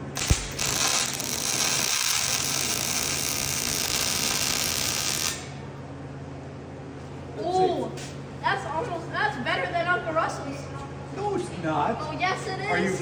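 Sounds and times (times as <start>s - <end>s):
welding arc popping and sizzling: 0.0s - 5.6s.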